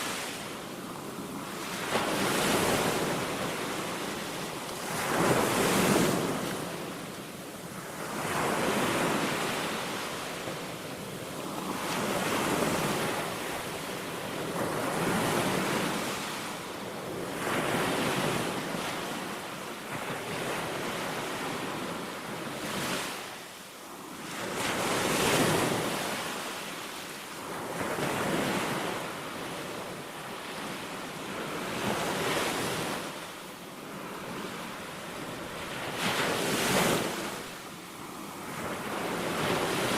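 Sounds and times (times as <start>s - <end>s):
small waves breaking on beach: 0.0s - 39.9s.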